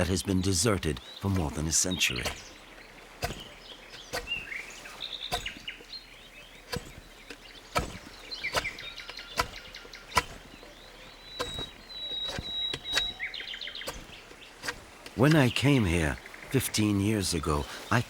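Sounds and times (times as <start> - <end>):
birds chirping: 0.0 - 18.0
sharp knocks: 2.2 - 4.5, 5.3 - 5.8, 6.6 - 10.7, 11.3 - 15.2.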